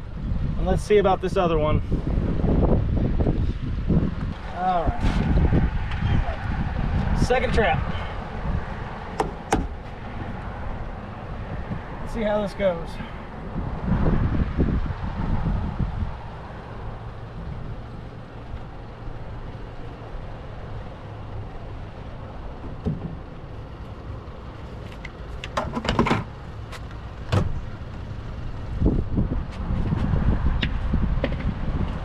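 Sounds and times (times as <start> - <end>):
wind buffeting microphone: 0.0 - 23.4, 27.1 - 32.0
knocks and rattles of trap: 25.4 - 26.3.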